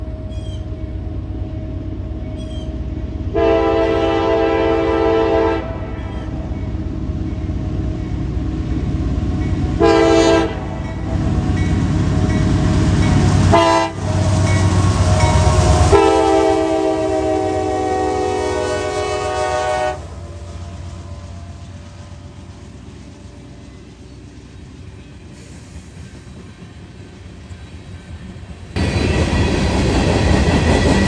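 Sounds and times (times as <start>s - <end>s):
diesel locomotive rumble: 0.0s - 31.0s
locomotive air horn blasts: 3.3s - 6.1s, 9.8s - 10.7s, 13.5s - 20.1s.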